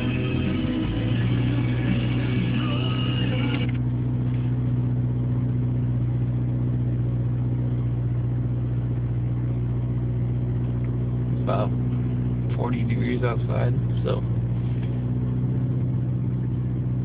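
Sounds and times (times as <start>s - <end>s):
music: 0.0s - 3.8s
car engine idling: 0.0s - 17.0s.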